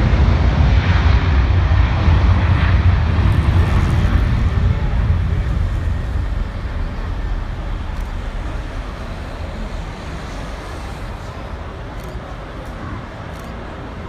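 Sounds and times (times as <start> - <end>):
jet engines rumbling at takeoff: 0.0 - 14.0.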